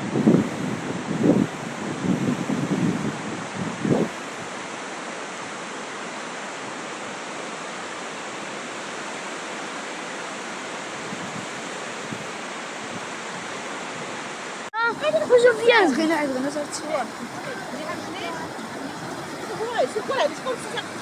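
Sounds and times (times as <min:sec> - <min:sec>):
wind buffeting microphone: 0:00.0 - 0:04.3, 0:14.8 - 0:21.0
floodwater rushing: 0:14.8 - 0:21.0.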